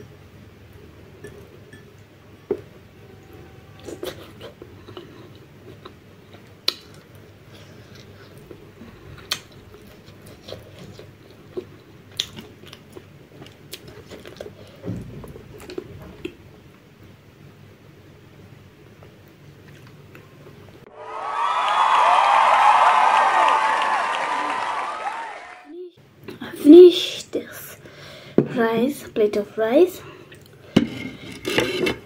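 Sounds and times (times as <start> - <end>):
person chewing food: 3.8 - 14.8.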